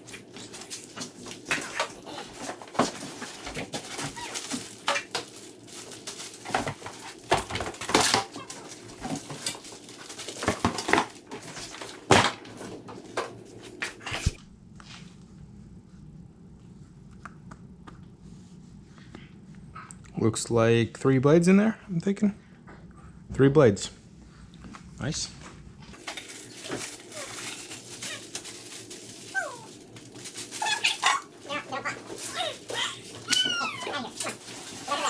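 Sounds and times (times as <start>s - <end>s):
cardboard and plastic crackling: 0.0s - 14.4s, 26.0s - 35.0s
quiet low hum: 0.0s - 35.0s.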